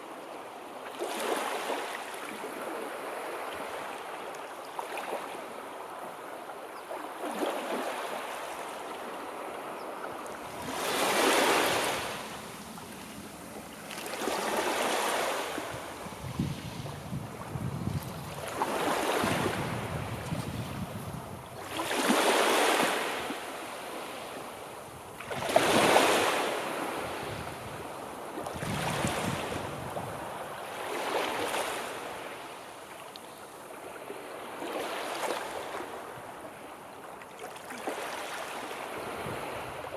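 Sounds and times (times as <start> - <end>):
sea waves washing in: 7.1 - 32.8.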